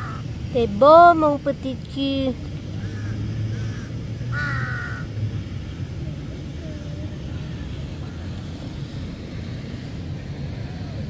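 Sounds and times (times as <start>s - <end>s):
crow-like bird caw: 0.0s - 0.2s, 2.8s - 5.1s
steady low rumble: 0.0s - 11.0s.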